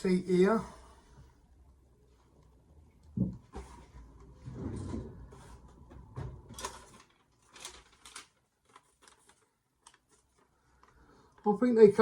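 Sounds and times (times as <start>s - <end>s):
knocks and thumps: 3.2s - 3.8s
paper receipt rustling: 6.5s - 11.1s
rustling: 6.5s - 11.4s.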